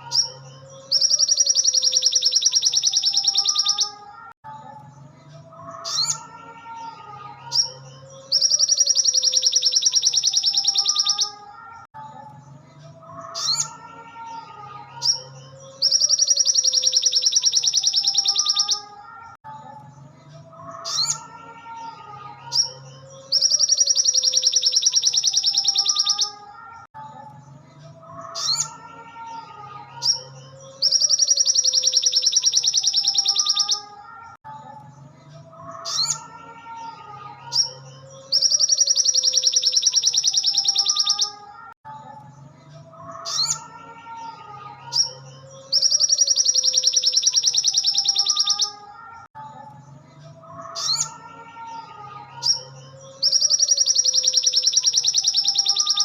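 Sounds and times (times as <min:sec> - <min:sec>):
bird high trill: 0:00.0 - 0:04.2, 0:05.7 - 0:11.5, 0:15.0 - 0:19.4, 0:22.5 - 0:26.8, 0:30.0 - 0:34.4, 0:37.5 - 0:41.7, 0:44.9 - 0:49.3, 0:52.4 - 0:56.0.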